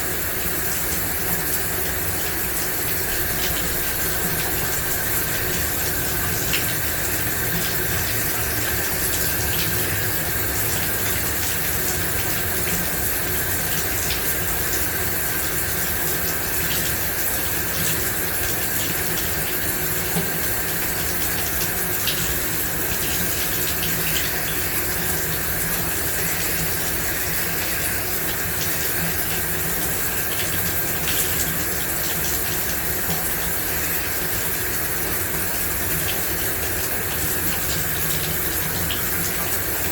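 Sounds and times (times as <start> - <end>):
shower water spraying: 0.0 - 39.9.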